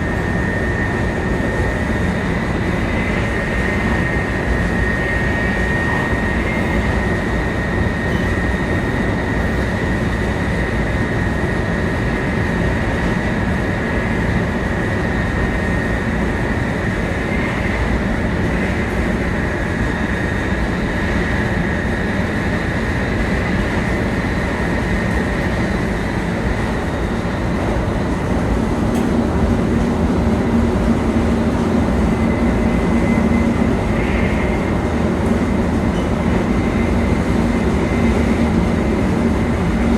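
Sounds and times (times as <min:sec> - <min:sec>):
high whine: 0:00.0 - 0:28.3
train wheels rumbling on rails: 0:00.0 - 0:39.9.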